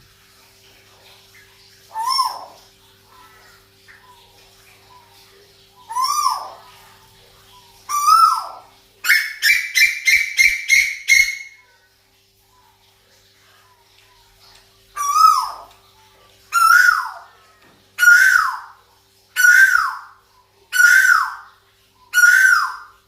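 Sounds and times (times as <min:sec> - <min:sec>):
faint steady hum: 0:00.0 - 0:23.0
bird calling: 0:01.8 - 0:05.2, 0:05.8 - 0:11.8, 0:15.0 - 0:15.8, 0:16.5 - 0:17.4, 0:18.0 - 0:18.8, 0:19.4 - 0:23.0.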